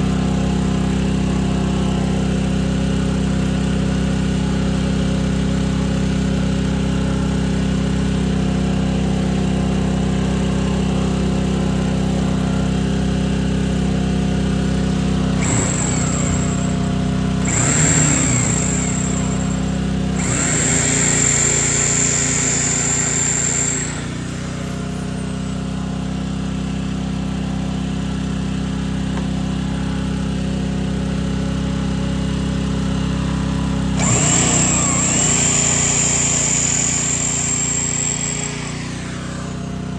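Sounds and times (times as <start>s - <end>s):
power tool whining: 14.2s - 26.1s, 32.6s - 39.9s
steady mechanical drone: 15.4s - 24.7s.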